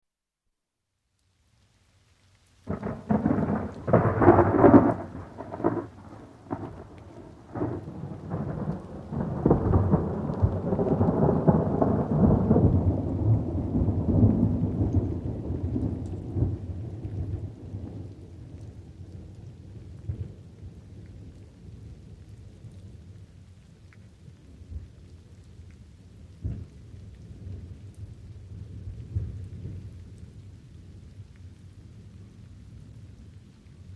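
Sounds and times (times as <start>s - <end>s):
rain: 0.9s - 33.9s
thunder clap and rumble: 2.7s - 18.7s.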